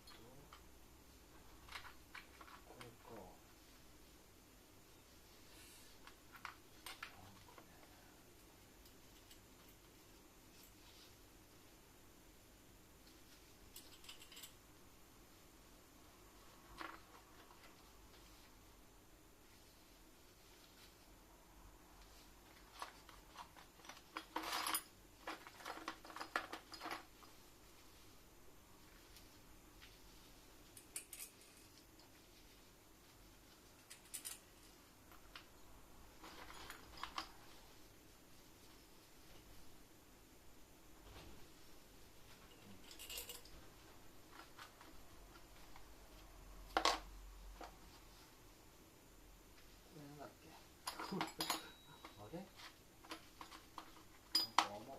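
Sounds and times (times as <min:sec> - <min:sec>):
small metal parts clinking: 0:13.7 - 0:14.6, 0:30.8 - 0:31.8, 0:33.8 - 0:34.5, 0:42.5 - 0:43.6.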